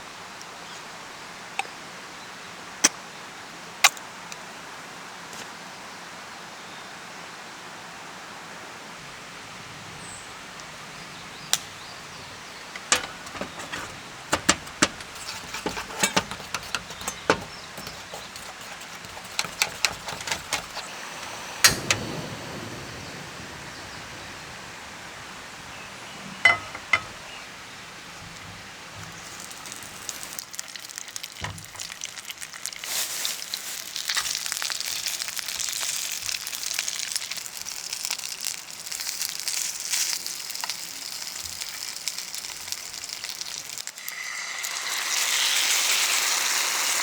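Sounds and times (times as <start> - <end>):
stream running: 9.2 - 38.9
sharp clicks and knocks: 12.8 - 22.1, 26.5 - 27.2.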